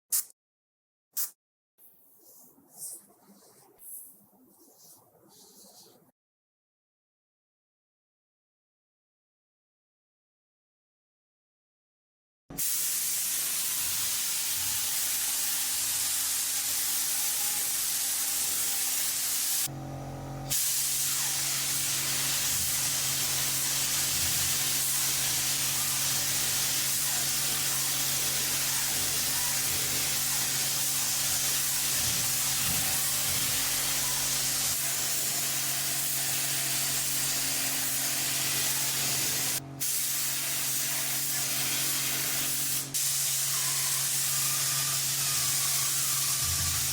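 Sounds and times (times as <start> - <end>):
paint spray hissing: 12.6 - 19.7, 20.5 - 46.9.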